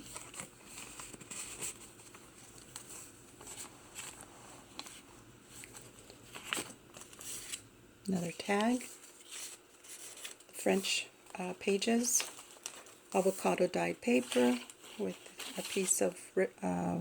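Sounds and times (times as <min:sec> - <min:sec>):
paper pages rustling: 0:00.0 - 0:10.6, 0:11.3 - 0:16.1.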